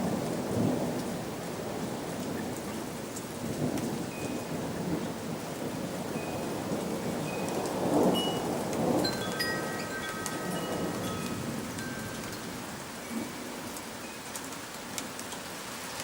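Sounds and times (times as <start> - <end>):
steady rain: 0.0 - 16.0
thunder rumbling: 4.5 - 13.2
wind chime ringing: 7.3 - 13.2.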